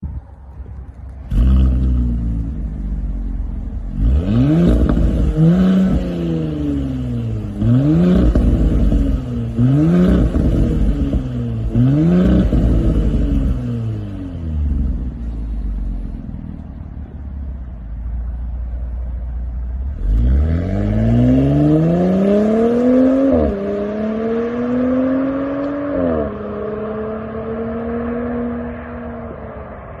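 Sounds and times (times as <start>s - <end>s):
car engine idling and revving: 0.0s - 30.0s
car accelerating through gears: 3.9s - 15.1s, 20.0s - 30.0s.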